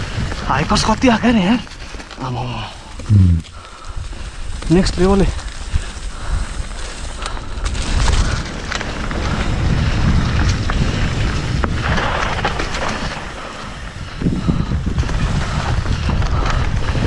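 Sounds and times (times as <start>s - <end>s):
tyres hissing over loose ground: 0.5s - 16.0s
tyre noise: 1.6s - 7.8s
wind buffeting microphone: 2.8s - 17.0s.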